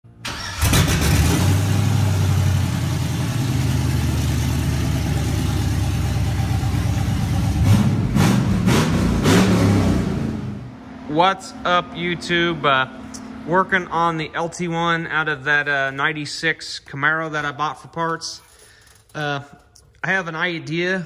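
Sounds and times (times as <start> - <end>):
car engine idling: 0.2 - 15.4
car engine revving: 0.3 - 11.2.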